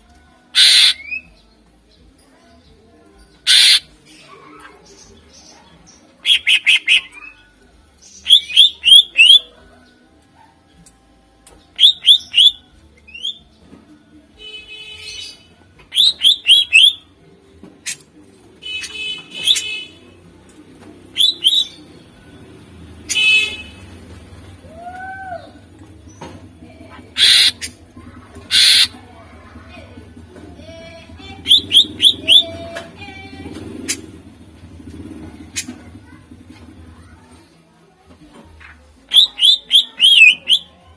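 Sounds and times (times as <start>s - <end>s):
bird harsh rattling calls: 0.6s - 1.1s, 3.4s - 3.9s, 6.2s - 7.3s, 27.1s - 27.8s, 28.5s - 29.0s.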